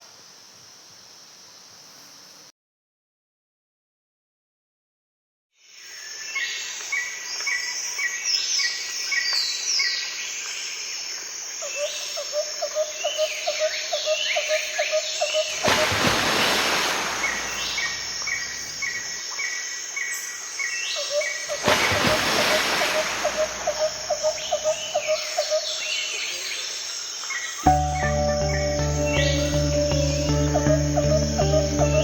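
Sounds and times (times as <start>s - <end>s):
birds singing and calling: 13.0s - 32.0s.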